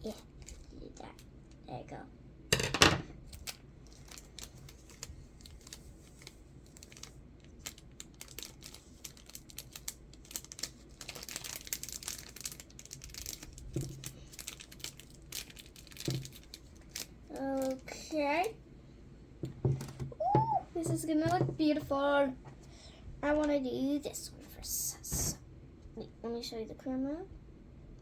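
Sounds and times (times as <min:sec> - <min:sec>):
plastic crinkling and rustling: 0:00.0 - 0:01.6, 0:03.1 - 0:18.6.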